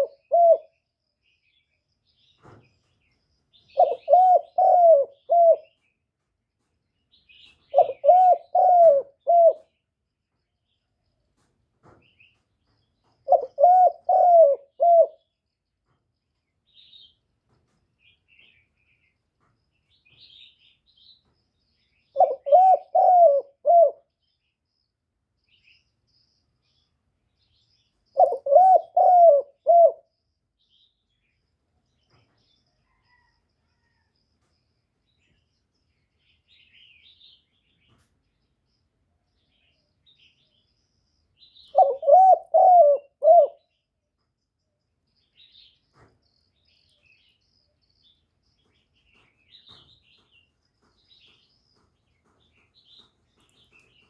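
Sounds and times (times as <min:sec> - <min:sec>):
dove cooing: 0:00.0 - 0:00.8, 0:03.8 - 0:05.8, 0:07.7 - 0:09.7, 0:13.2 - 0:15.2, 0:22.2 - 0:24.1, 0:28.2 - 0:30.1, 0:41.6 - 0:43.7
faint high bird chirps: 0:19.8 - 0:54.0.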